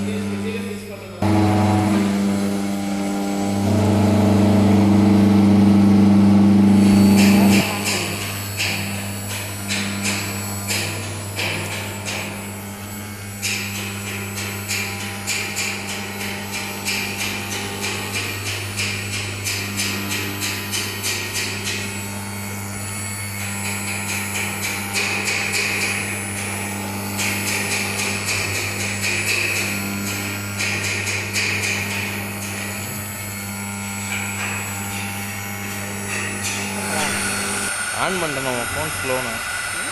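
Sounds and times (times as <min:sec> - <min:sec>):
router spindle hum: 0:00.0 - 0:39.9.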